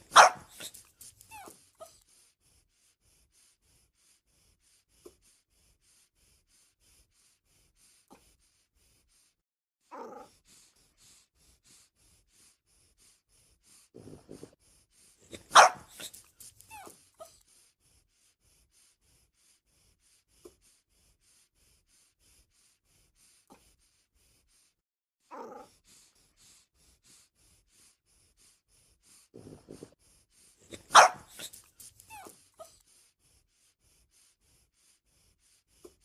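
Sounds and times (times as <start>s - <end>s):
dog barking and yipping: 0.0s - 1.5s, 15.3s - 16.9s, 30.7s - 32.3s.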